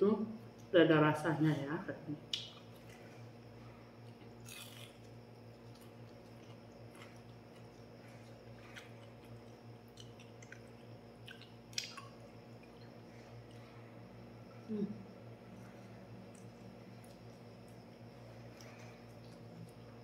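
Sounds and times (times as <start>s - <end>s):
faint low hum: 0.0s - 20.0s
person chewing food: 2.3s - 13.7s, 16.2s - 20.0s.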